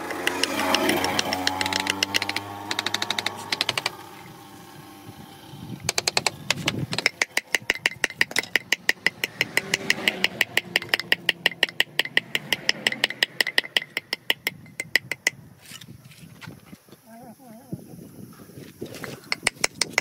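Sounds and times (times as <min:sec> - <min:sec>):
rapid hammer taps on stone: 0:00.0 - 0:04.0, 0:05.9 - 0:15.3.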